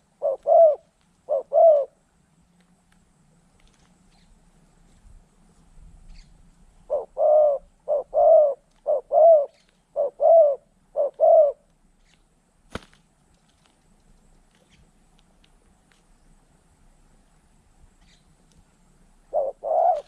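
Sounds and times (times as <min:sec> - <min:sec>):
dove cooing: 0:00.0 - 0:02.0, 0:06.1 - 0:11.7, 0:19.2 - 0:20.0.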